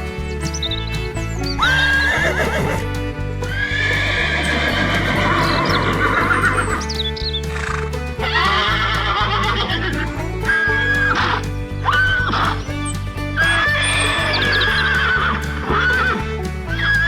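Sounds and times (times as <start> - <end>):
horse whinnying: 1.7 - 2.9, 3.5 - 10.0.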